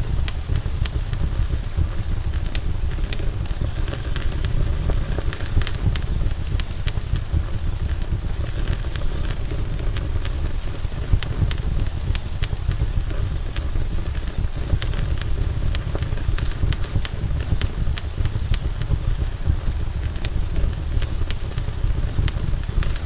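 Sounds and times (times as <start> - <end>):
burning wood crackling and popping: 0.0 - 23.0
low rumble of flames: 0.0 - 23.0.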